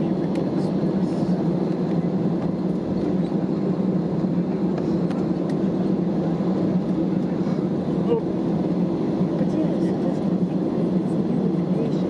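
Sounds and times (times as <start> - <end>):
airliner engine and cabin hum: 0.0 - 12.0.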